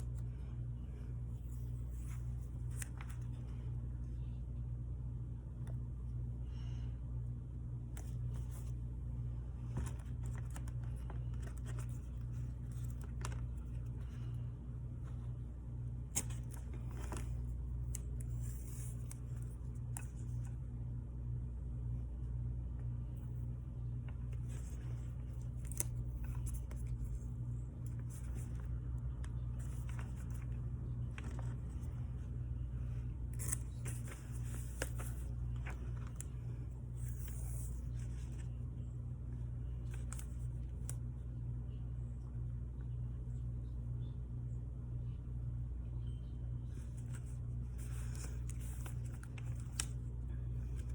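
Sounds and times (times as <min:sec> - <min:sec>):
steady low hum: 0:00.0 - 0:50.9
paper rustling: 0:01.3 - 0:03.7, 0:07.9 - 0:20.5, 0:24.1 - 0:38.6, 0:46.7 - 0:50.9.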